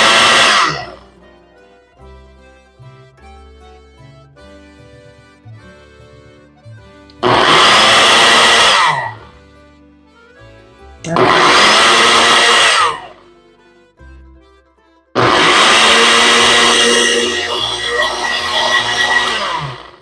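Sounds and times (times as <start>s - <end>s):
blender motor whirring: 0.0s - 1.0s, 7.2s - 9.2s, 11.1s - 13.0s, 15.2s - 20.0s
soft background music: 0.2s - 19.3s.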